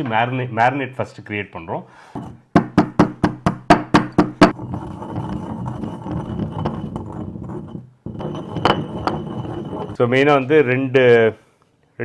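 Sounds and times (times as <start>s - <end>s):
pestle pounding in a mortar: 2.2s - 9.9s
rough crushing noise: 4.4s - 10.0s.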